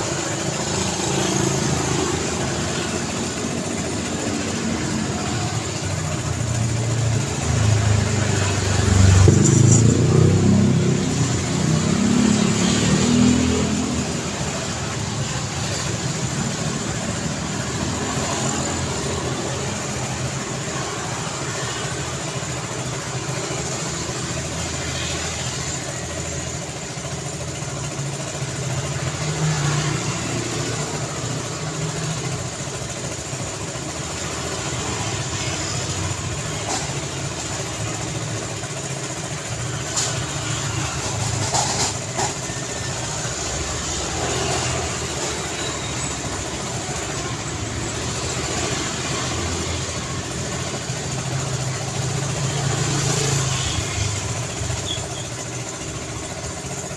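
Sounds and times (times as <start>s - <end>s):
vehicle engines and tyre noise: 0.0s - 56.9s.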